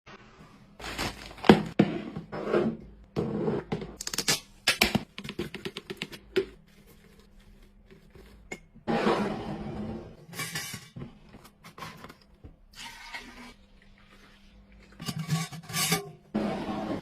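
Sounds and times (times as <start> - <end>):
packaging rustling: 0.8 - 1.8
knocks and clicks of containers: 4.8 - 6.6.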